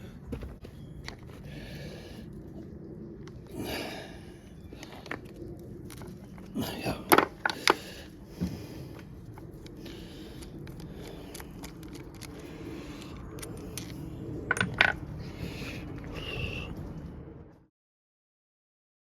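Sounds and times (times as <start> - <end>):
steady low hum: 0.0 - 17.7
metal tools clinking: 13.1 - 15.0.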